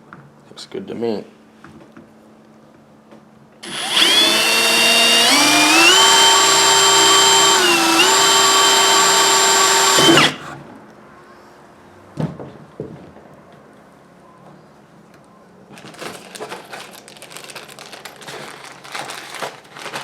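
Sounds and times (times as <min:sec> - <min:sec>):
electric drill drilling into plastic: 0:03.6 - 0:10.6.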